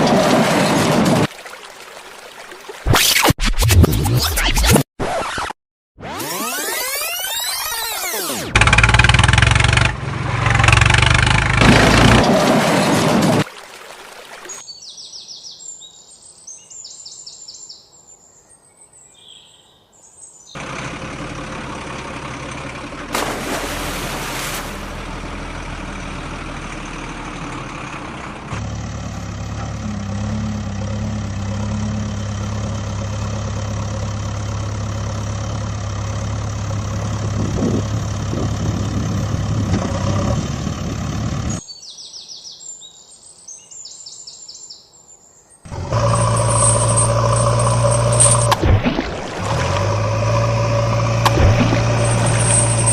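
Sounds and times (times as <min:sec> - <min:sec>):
vehicle engine running: 0:08.4 - 0:13.2, 0:20.6 - 0:41.6, 0:45.7 - 0:52.9.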